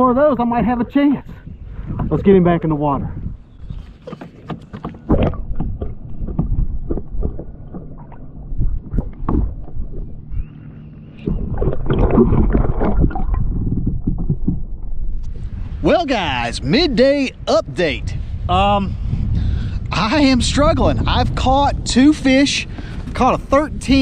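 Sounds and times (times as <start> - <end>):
knocks and clatter on kayak: 3.7 - 10.2, 11.2 - 15.0
water splashing and gurgling: 4.0 - 15.2
low rumble: 5.1 - 24.0.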